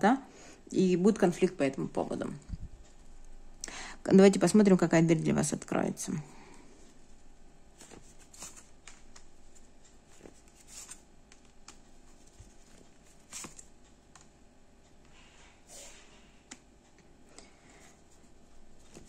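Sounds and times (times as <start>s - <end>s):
cards being shuffled and laid out: 7.8s - 13.7s.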